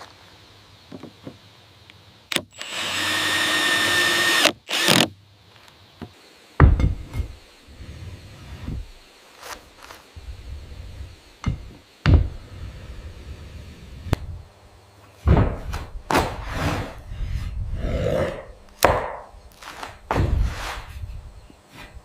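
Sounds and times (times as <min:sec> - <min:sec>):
knocks and thuds on wood: 0:06.6 - 0:07.3, 0:11.4 - 0:12.4, 0:15.2 - 0:16.4, 0:18.8 - 0:19.3
rough scraping: 0:16.2 - 0:17.6.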